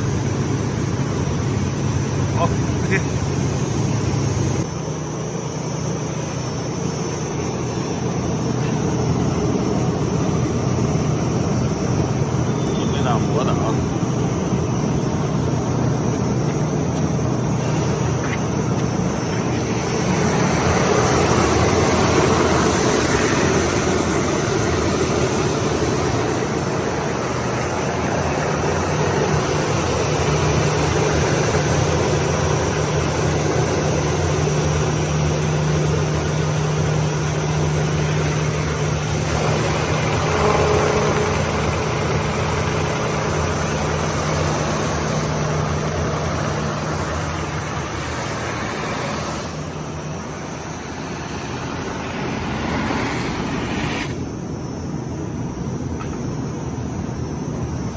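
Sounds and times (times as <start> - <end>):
motor hum: 0.0 - 54.4
sanding rollers grinding wood: 16.4 - 49.6, 51.4 - 54.2.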